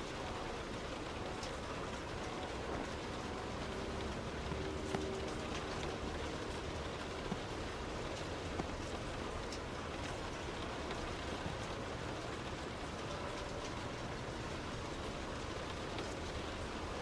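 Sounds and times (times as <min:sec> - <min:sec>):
heavy rain on a car: 0:00.0 - 0:17.0
wet road noise: 0:00.0 - 0:17.0.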